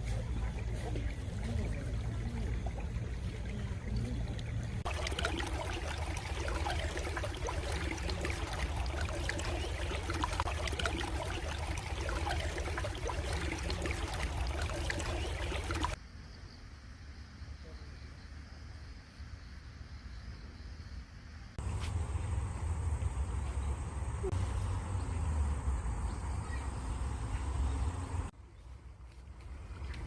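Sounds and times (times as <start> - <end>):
stream trickling and splashing: 0.0 - 16.0, 21.6 - 30.0.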